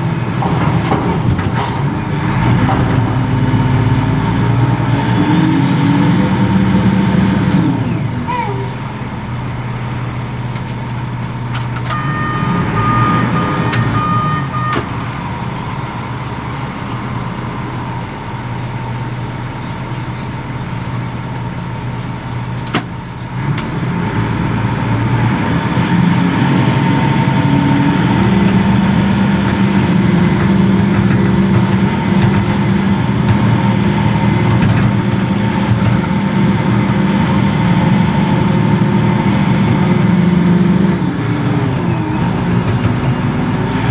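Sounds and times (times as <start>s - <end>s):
diesel engine running: 0.0s - 43.9s
high warning tone: 11.9s - 15.0s.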